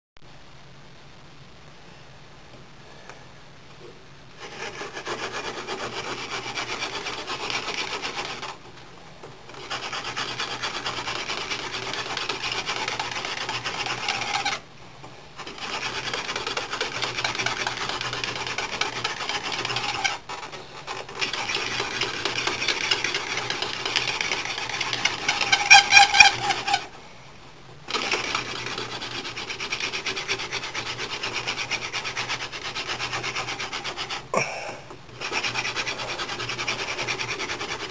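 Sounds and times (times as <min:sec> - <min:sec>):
wooden spindle rubbing grind: 0:04.4 - 0:08.8, 0:09.4 - 0:14.6, 0:15.4 - 0:27.0, 0:27.8 - 0:34.4, 0:35.1 - 0:37.9
spindle squeal: 0:25.1 - 0:26.9.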